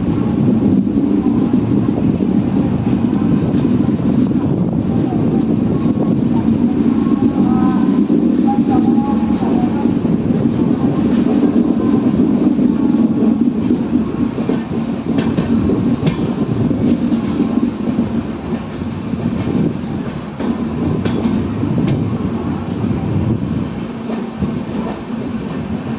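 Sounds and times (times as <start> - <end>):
train wheels rumbling on rail: 0.0 - 25.9
wheels clacking over rail joints: 12.2 - 22.1.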